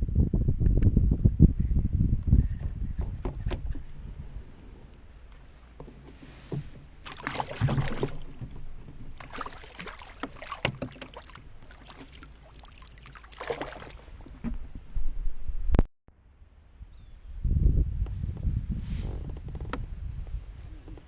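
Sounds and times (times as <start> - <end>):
water splashing and sloshing: 5.2 - 15.2.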